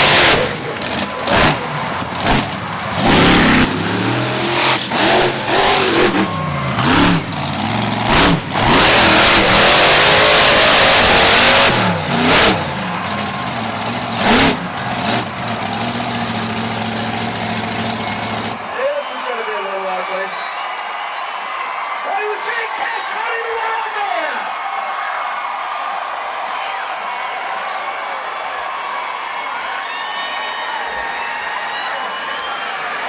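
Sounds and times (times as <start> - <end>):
monster truck engine revving: 0.0 - 18.7.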